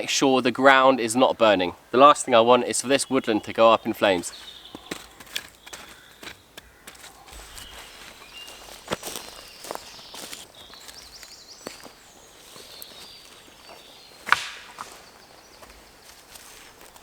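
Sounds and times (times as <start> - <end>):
footsteps on leaf litter: 3.2 - 17.0
twig snaps: 14.2 - 15.0
sharp knock: 14.3 - 14.8.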